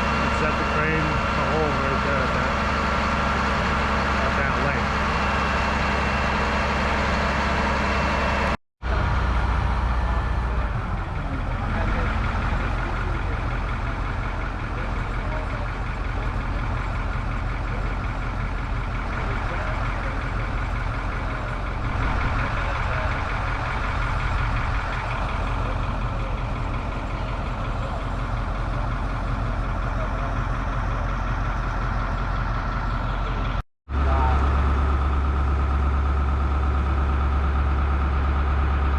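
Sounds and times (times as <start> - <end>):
crane engine running: 0.0 - 38.9.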